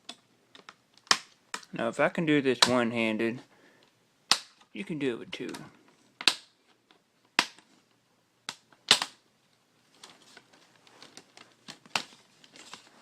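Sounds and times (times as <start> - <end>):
plastic crackling: 3.8 - 13.0
plastic clips snapping loose: 4.3 - 4.7, 5.4 - 7.7, 8.5 - 9.2.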